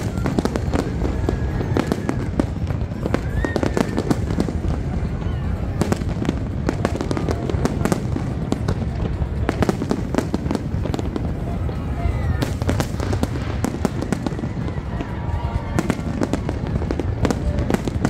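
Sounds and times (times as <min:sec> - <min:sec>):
steady low rumble: 0:04.2 - 0:18.0.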